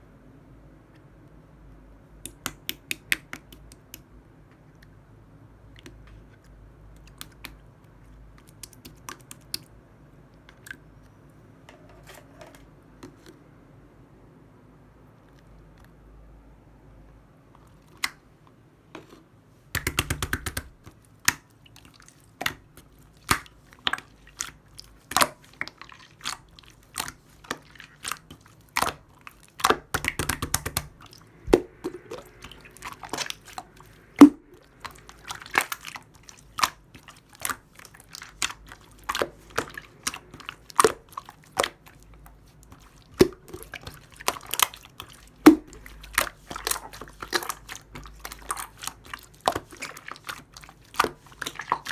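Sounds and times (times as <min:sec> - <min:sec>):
slime crackling: 0:19.8 - 0:51.9
slime popping and clicking: 0:29.6 - 0:36.8.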